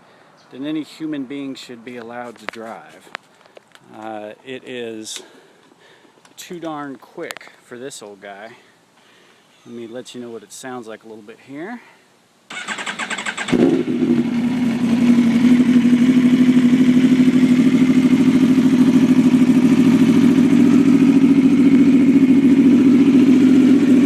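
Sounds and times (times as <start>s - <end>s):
motorcycle engine starting and idling: 12.5s - 24.0s.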